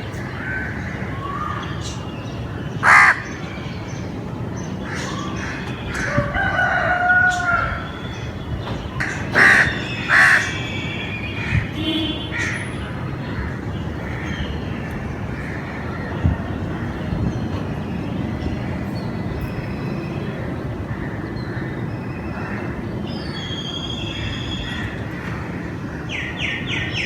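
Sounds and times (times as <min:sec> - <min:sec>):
chickens calling: 0:04.8 - 0:11.6
rooster crowing: 0:06.0 - 0:08.1.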